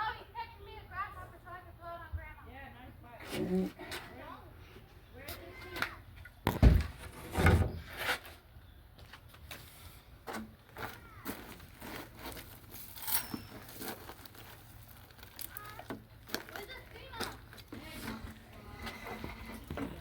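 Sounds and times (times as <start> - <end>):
heavy thumps: 6.5 - 7.8.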